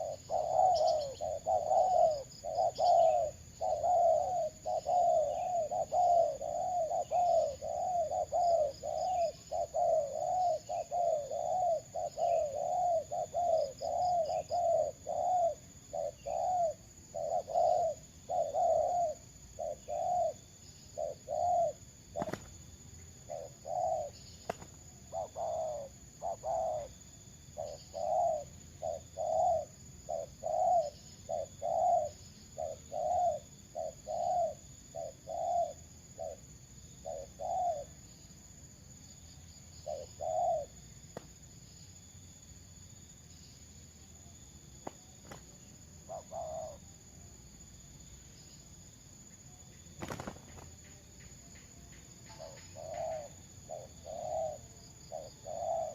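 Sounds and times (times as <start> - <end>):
dove cooing: 0.0 - 22.6, 23.2 - 38.0, 39.8 - 40.8, 45.2 - 46.9, 50.0 - 50.8, 52.2 - 55.9
faint bird chirps: 0.0 - 55.9.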